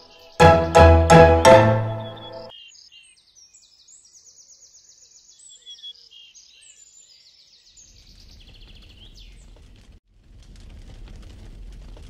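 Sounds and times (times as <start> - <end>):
songbirds singing: 2.0 - 9.5.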